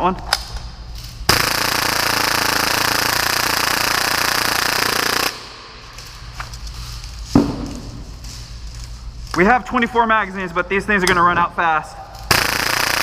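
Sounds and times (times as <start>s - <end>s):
airsoft pistol firing full-auto: 1.3s - 5.5s, 12.3s - 13.0s.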